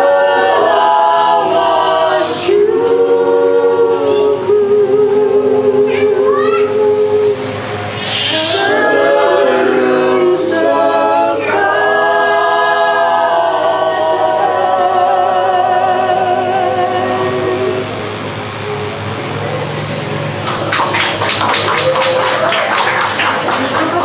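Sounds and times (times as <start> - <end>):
group singing a cappella: 0.0 - 19.1.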